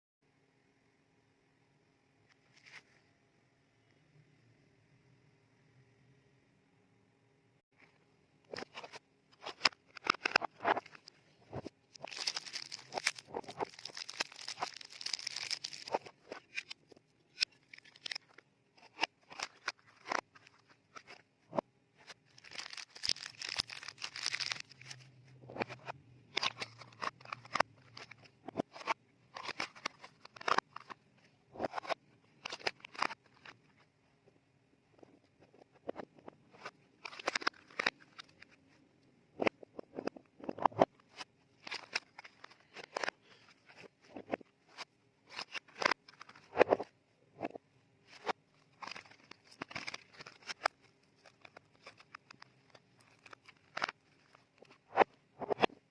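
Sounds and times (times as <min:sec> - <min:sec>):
paper wrapper crinkling: 0:11.9 - 0:21.2, 0:22.0 - 0:25.1, 0:48.1 - 0:54.7.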